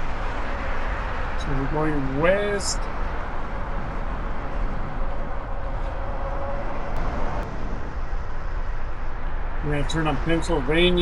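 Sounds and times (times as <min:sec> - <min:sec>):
road traffic noise: 0:00.0 - 0:11.0
deep rumble: 0:02.8 - 0:10.9.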